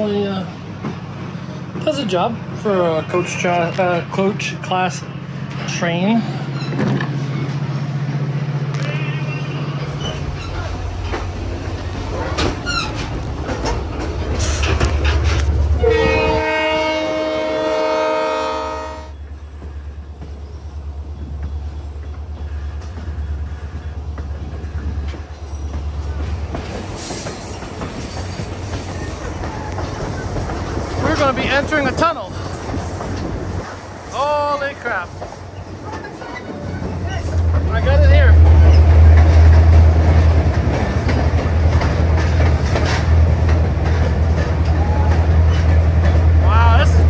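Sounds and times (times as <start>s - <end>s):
train rumble: 0.0s - 47.0s
high wheel squeal: 8.8s - 11.2s, 12.2s - 13.1s
wheels clicking over rails: 9.8s - 16.2s, 19.5s - 47.0s.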